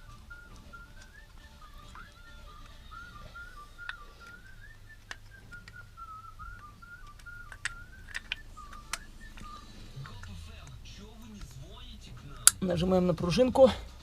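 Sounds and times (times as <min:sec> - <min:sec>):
person whistling a tune: 0:00.0 - 0:10.4
metal brake parts clicking: 0:00.0 - 0:11.6.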